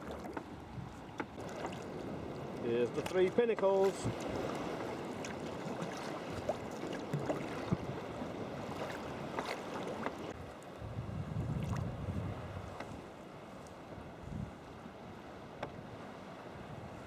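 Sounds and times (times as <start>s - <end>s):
wind rumble on microphone: 0.0s - 3.4s, 4.0s - 17.0s
paddle splashing water: 0.0s - 17.0s
water washing along hull: 0.0s - 17.0s.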